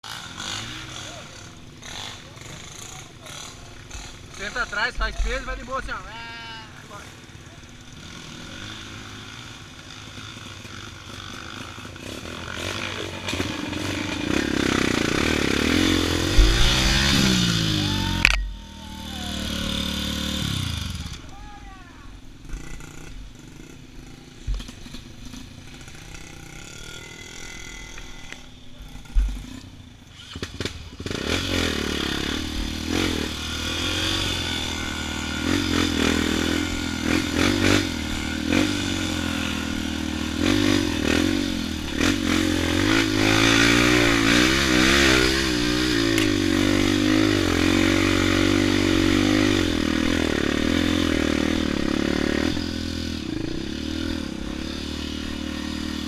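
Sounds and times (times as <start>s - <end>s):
off-road motorcycle engine revving: 0.0s - 56.0s
sharp knocks: 16.3s - 17.0s.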